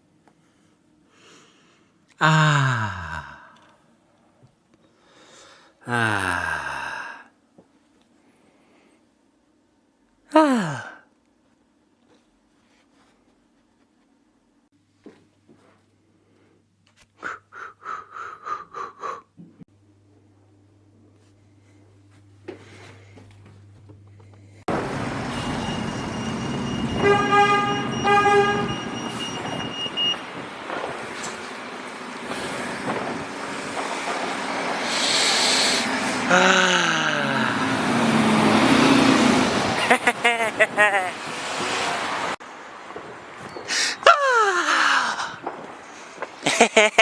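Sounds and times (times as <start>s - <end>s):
person making breathy pulses: 1.2s - 3.8s, 5.0s - 7.4s, 17.2s - 19.6s, 34.6s - 38.3s
person sighing: 2.1s - 3.8s, 5.2s - 7.4s, 10.3s - 11.1s, 17.2s - 19.3s, 34.9s - 38.3s, 43.7s - 45.4s.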